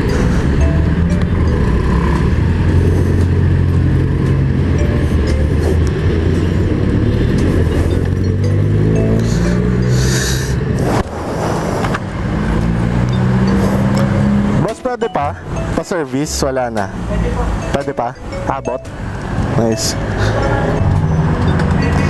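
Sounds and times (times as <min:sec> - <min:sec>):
scooter engine running: 0:00.0 - 0:15.6.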